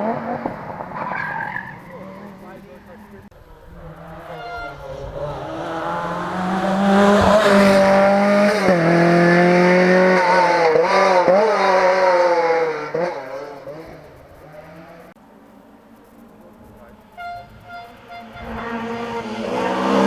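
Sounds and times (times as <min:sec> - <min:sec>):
rally car driving past: 0:18.0 - 0:20.0.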